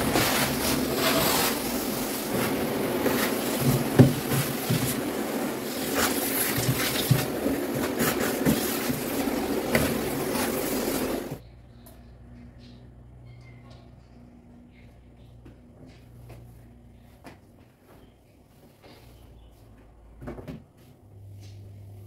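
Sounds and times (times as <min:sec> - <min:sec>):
rustling scrub: 0:00.0 - 0:11.4.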